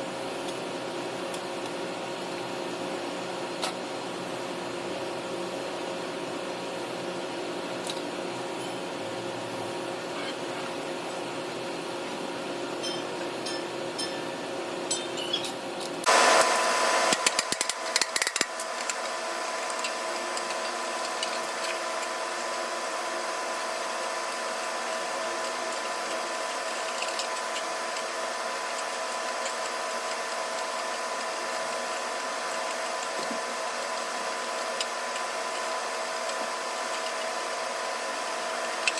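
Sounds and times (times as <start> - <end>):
machine hum: 0.0 - 38.9
loud clattering and clicks: 17.1 - 19.1.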